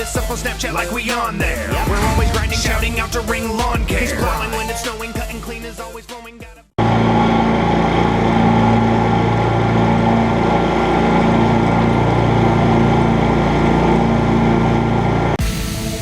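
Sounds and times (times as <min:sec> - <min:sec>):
music: 0:00.0 - 0:06.8, 0:12.7 - 0:16.0
motor engine running: 0:01.7 - 0:05.4, 0:06.8 - 0:15.4.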